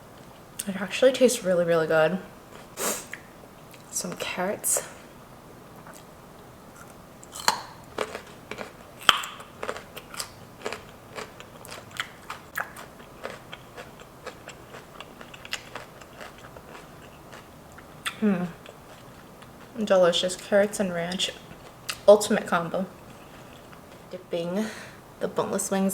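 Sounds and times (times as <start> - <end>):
carrot crunching: 6.7 - 20.5.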